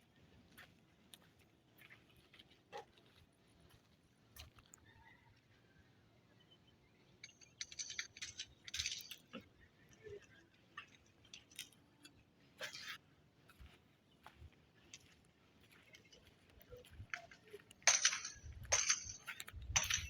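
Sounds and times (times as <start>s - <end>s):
clinks and scrapes of hard objects: 7.2s - 13.0s, 16.0s - 20.0s.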